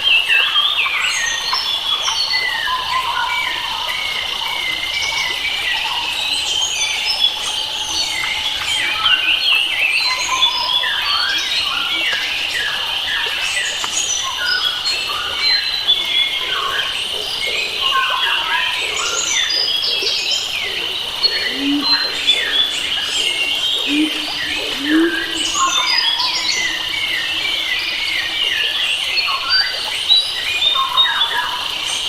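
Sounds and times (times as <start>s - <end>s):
low bird calls: 15.4s - 29.9s
birds chirping and whistling: 17.9s - 31.4s
high-pitched drone: 20.0s - 27.1s.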